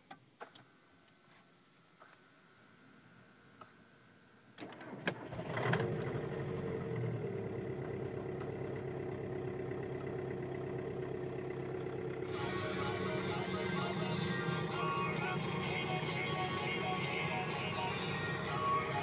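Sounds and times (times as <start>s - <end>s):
starter cranking: 4.6s - 6.5s
engine idling: 5.2s - 19.0s.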